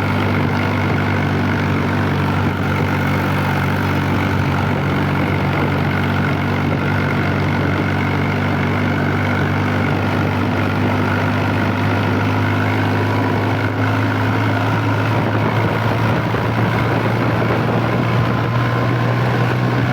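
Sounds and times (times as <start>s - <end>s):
tractor diesel engine droning: 0.0s - 19.9s.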